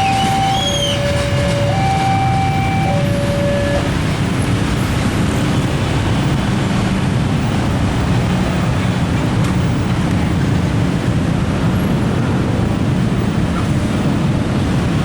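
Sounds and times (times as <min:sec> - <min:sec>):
two-note alternating tone: 0:00.0 - 0:04.1
fast train rumbling past: 0:00.0 - 0:15.0.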